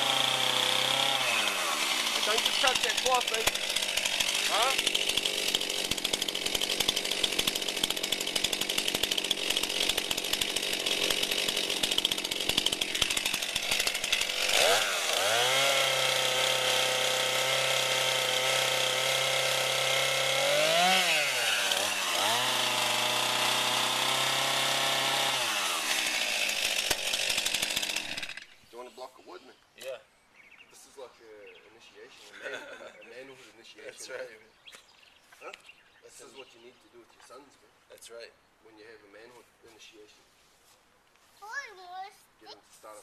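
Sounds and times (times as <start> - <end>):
chainsaw idling and revving: 0.0 - 28.6.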